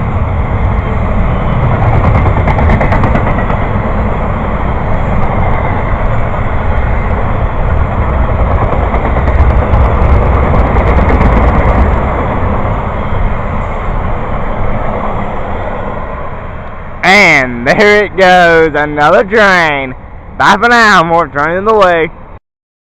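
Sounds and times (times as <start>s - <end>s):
train wheels on rails: 0.0s - 17.0s
rapid clicks of train wheels: 0.1s - 12.8s.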